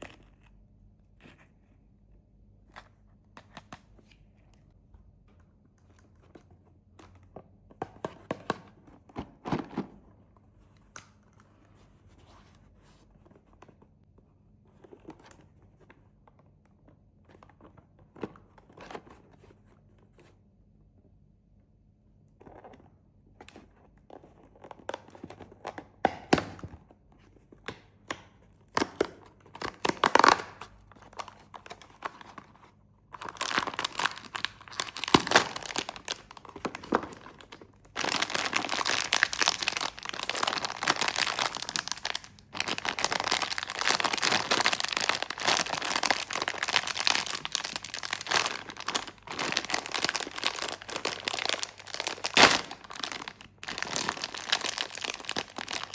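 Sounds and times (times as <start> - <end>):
snack wrappers crinkling and tearing: 28.8 - 32.5, 33.2 - 55.9.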